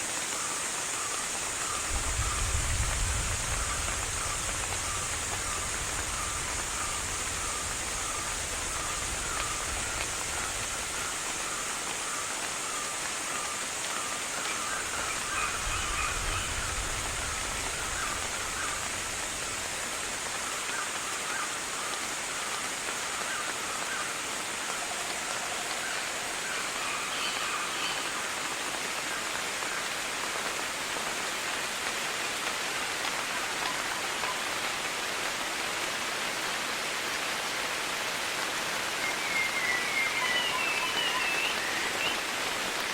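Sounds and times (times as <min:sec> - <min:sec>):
steady rain hiss: 0:00.0 - 0:42.9
bird chirping: 0:39.0 - 0:42.2.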